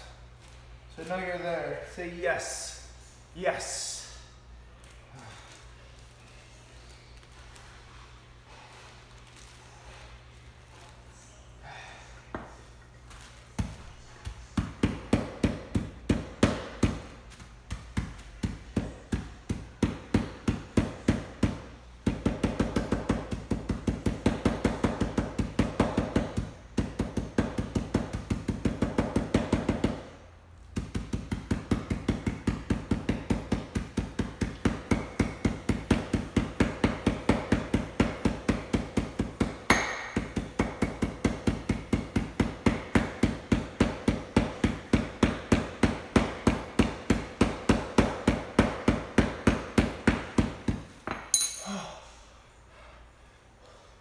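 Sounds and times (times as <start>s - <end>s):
rapid pounding of food: 30.8s - 50.8s.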